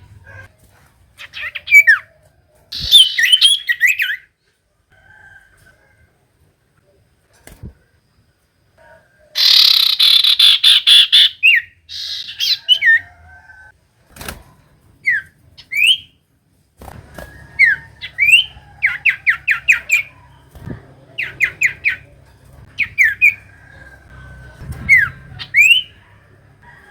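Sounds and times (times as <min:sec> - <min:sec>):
bird harsh chattering squawk: 0:02.7 - 0:04.2, 0:09.4 - 0:13.0, 0:17.6 - 0:20.2, 0:21.1 - 0:24.0, 0:24.6 - 0:26.1
bird whistled notes: 0:02.8 - 0:04.1, 0:17.6 - 0:20.1, 0:24.8 - 0:26.0.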